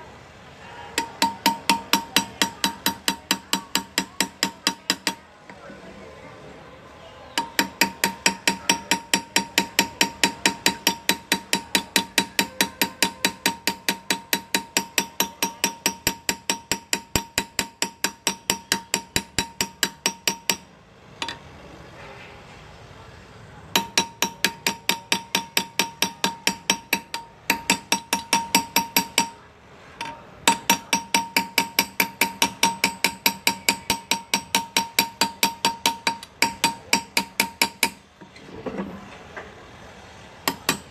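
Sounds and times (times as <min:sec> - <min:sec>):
engraving hammer tapping graver: 0:01.0 - 0:05.3, 0:07.4 - 0:21.4, 0:23.7 - 0:29.4, 0:30.0 - 0:38.2, 0:40.4 - 0:40.9.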